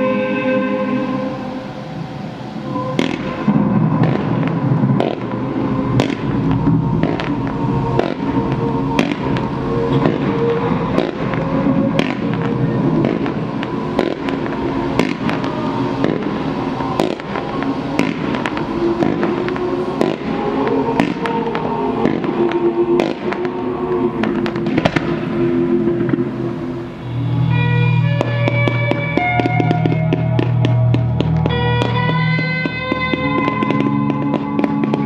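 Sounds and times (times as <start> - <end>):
music with held notes: 0.0 - 35.0
fireworks bangs and crackles: 2.0 - 35.0.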